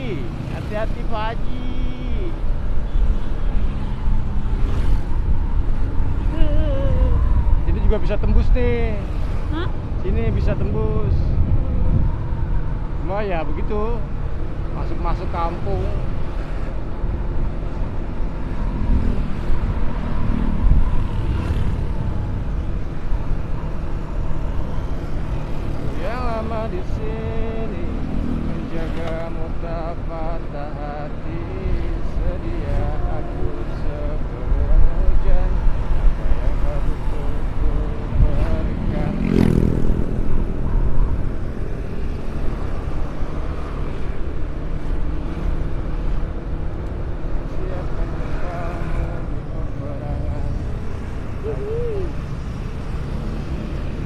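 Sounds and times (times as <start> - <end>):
road noise: 0.0 - 54.0
wind noise on microphone: 9.7 - 13.0, 18.8 - 22.6, 34.6 - 41.4
motorcycle engine cruising: 17.7 - 54.0.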